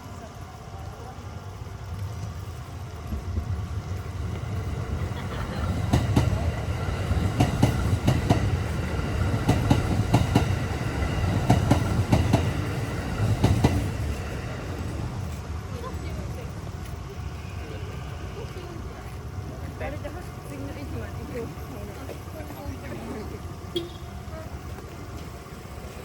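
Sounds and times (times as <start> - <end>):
train rumble: 0.0 - 26.0
wheels clacking over rail joints: 1.9 - 17.1.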